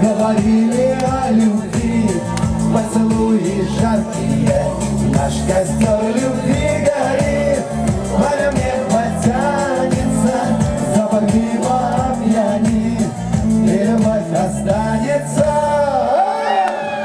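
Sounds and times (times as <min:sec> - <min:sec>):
man singing: 0:00.0 - 0:16.6
pop band playing: 0:00.0 - 0:17.0.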